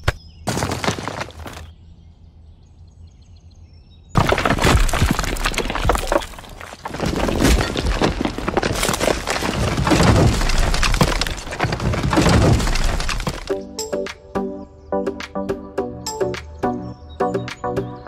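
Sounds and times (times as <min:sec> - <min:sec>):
small stones rattling and spilling: 0:00.5 - 0:01.7, 0:04.2 - 0:13.5
metal shovel scraping stones: 0:04.2 - 0:13.5
background music: 0:13.5 - 0:18.0.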